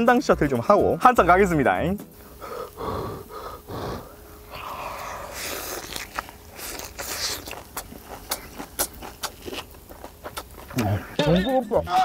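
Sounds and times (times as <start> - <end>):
wet crunching and smacking: 4.7 - 10.9
sharp mouth clicks: 5.3 - 9.7, 10.3 - 10.9.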